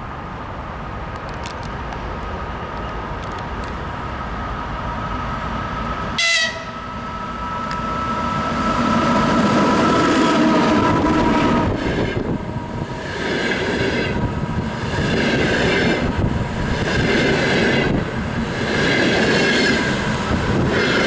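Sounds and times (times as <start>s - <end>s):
electric locomotive whine: 1.4s - 21.0s
locomotive whistle blast: 6.1s - 8.8s.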